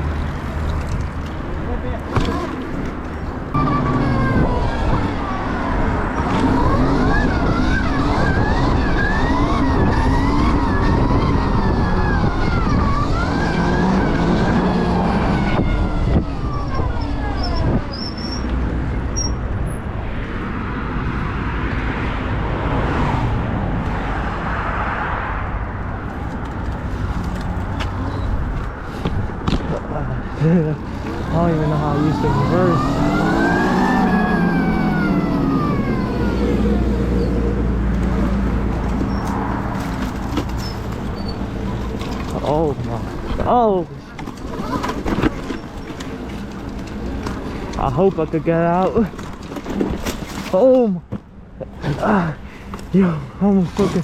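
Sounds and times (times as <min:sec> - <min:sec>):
wind noise on microphone: 0:03.3 - 0:42.0
tyre noise: 0:25.8 - 0:54.0
electric motor whine: 0:30.9 - 0:37.2.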